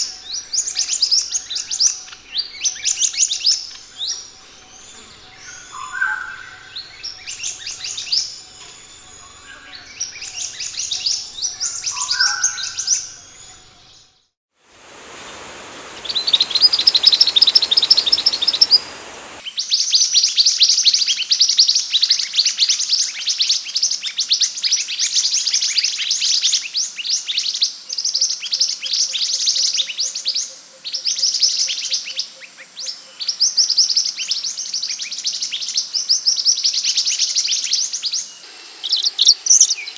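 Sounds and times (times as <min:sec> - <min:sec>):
bird song of sharp chirps: 0:00.0 - 0:14.2, 0:14.8 - 0:39.9
hiss: 0:14.6 - 0:19.4, 0:38.4 - 0:39.9.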